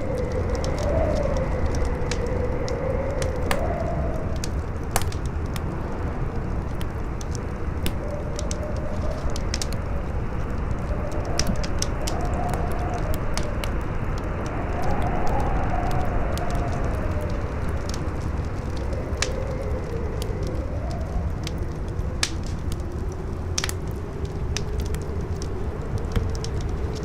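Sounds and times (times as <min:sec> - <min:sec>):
campfire crackling and popping: 0:00.0 - 0:27.0
howling wind tone: 0:00.0 - 0:27.0
strong wind rushing: 0:00.0 - 0:27.0.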